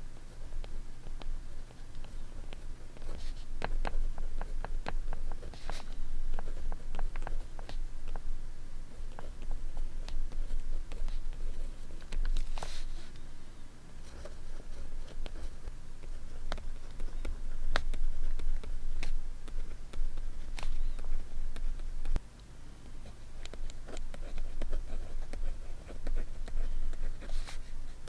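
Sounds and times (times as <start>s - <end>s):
paper rustle: 12.2s - 13.2s.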